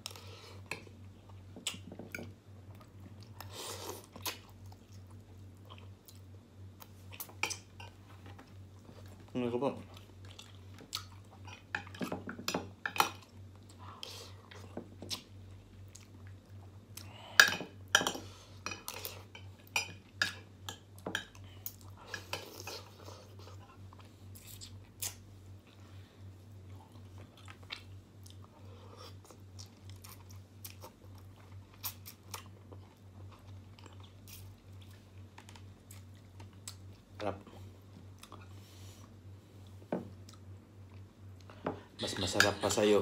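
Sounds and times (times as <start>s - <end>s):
low steady hum: 0.0s - 43.0s
chewing food: 0.1s - 12.3s, 26.6s - 37.1s.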